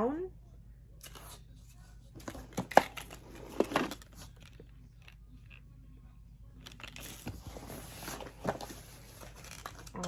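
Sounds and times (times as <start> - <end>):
packaging clicks and crinkles: 6.6 - 10.0.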